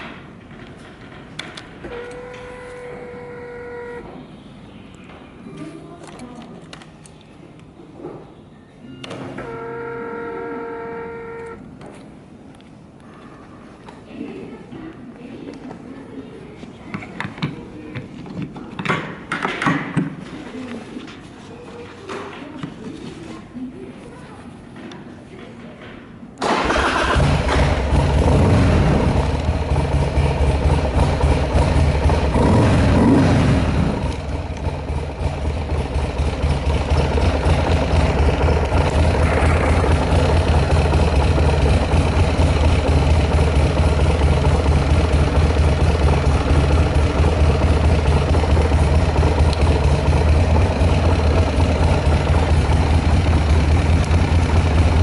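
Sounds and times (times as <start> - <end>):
motorcycle engine starting and idling: 0.0 - 4.2, 8.9 - 11.7, 26.4 - 55.0.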